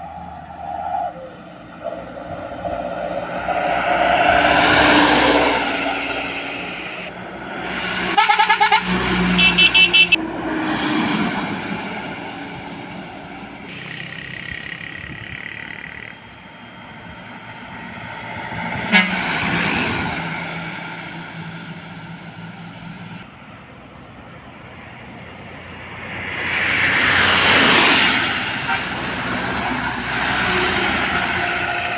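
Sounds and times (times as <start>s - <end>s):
trucks passing: 0.0s - 31.9s
vehicle horn tooting: 8.1s - 10.2s, 18.8s - 19.6s.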